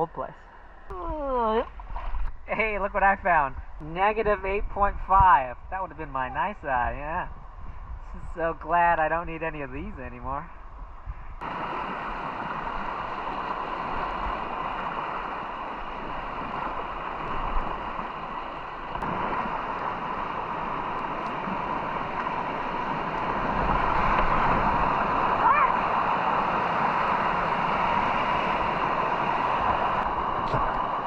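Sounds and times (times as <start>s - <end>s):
white water rushing: 11.4s - 31.0s.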